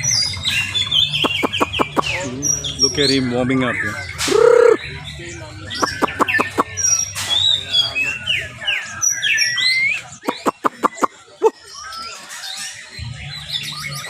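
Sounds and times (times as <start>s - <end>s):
bird singing whistled phrases: 0.0s - 14.0s
sharp bird clicks: 1.2s - 2.2s, 5.8s - 7.6s, 10.2s - 11.1s.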